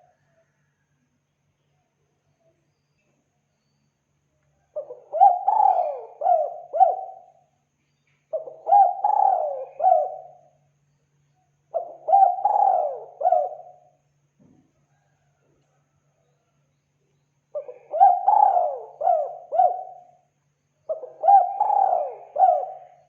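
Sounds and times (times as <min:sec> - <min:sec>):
dove cooing: 0:04.6 - 0:07.4, 0:08.3 - 0:10.6, 0:11.7 - 0:14.0, 0:17.5 - 0:20.2, 0:20.9 - 0:23.0.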